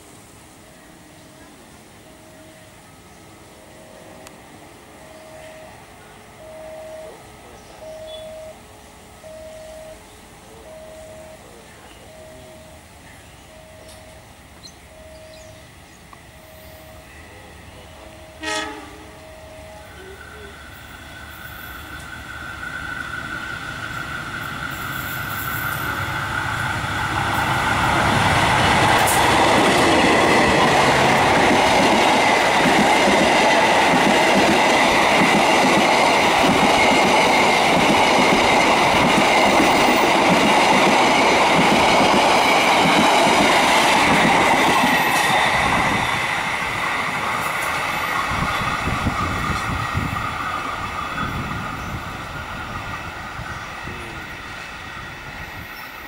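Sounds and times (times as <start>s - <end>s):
diesel locomotive passing: 0.0s - 56.0s
train wheels clattering on rails: 20.8s - 56.0s.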